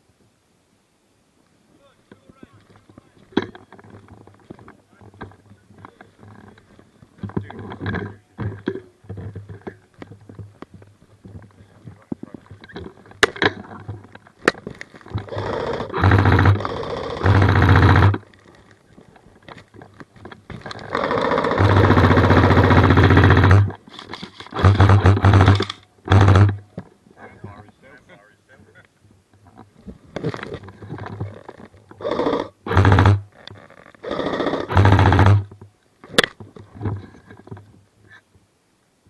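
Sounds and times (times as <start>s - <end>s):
airsoft rifle full-auto bursts: 15.2s - 18.2s, 20.9s - 23.7s, 24.5s - 26.6s, 32.0s - 33.2s, 34.0s - 35.5s.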